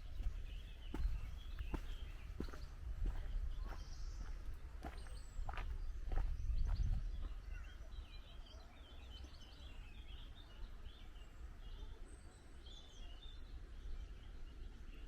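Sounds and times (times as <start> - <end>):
wind buffeting microphone: 0.0 - 8.0
small birds twittering: 0.0 - 15.0.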